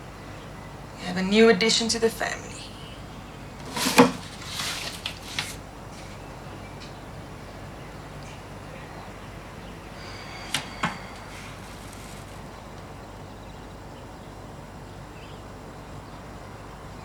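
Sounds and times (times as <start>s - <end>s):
brief rustling: 3.6s - 6.2s.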